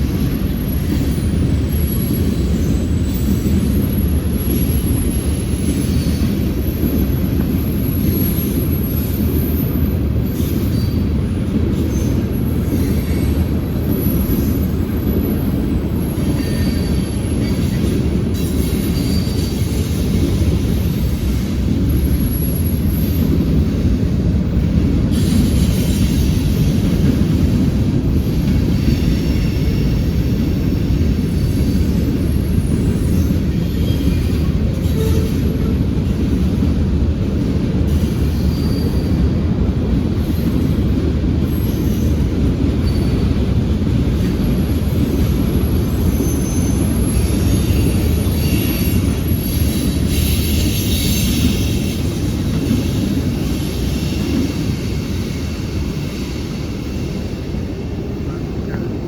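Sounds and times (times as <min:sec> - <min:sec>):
freight train rumbling on rails: 0:00.0 - 0:59.0
high wheel squeals: 0:16.2 - 0:20.4, 0:38.0 - 0:39.3, 0:41.5 - 0:43.6, 0:44.2 - 0:57.1.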